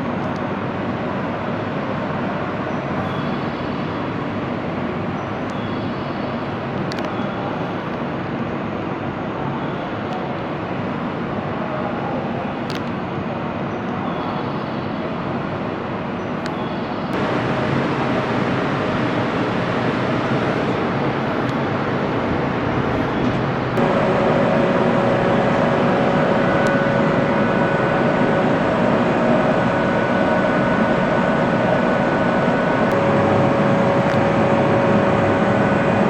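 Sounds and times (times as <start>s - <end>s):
electrical hum: 17.2s - 36.0s
train rumble: 17.2s - 36.0s.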